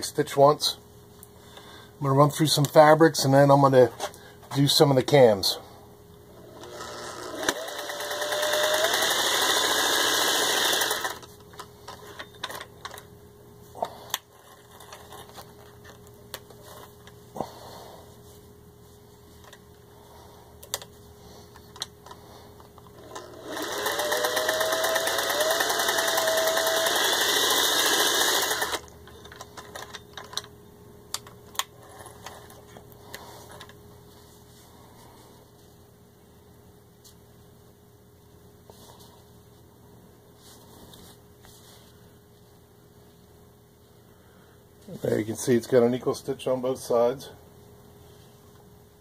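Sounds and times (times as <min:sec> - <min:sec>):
sewing machine stitching: 0:06.4 - 0:11.2, 0:23.0 - 0:28.9.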